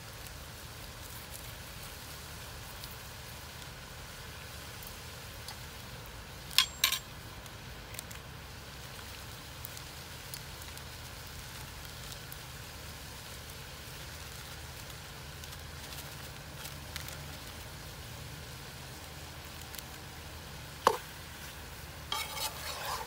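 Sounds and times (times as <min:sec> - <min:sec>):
chicken sizzling in a pan: 0:00.0 - 0:23.0
faint crackles: 0:00.0 - 0:23.0
sharp metal clinks: 0:06.6 - 0:07.1.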